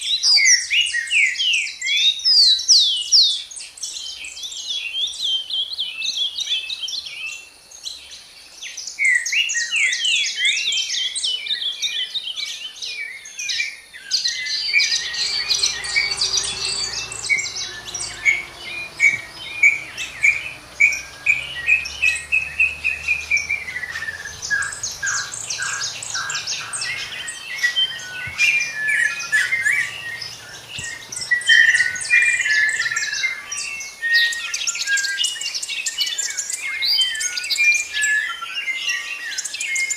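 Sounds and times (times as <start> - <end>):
songbirds chirping and trilling: 0.0 - 39.9
faint low rumble: 14.3 - 33.4.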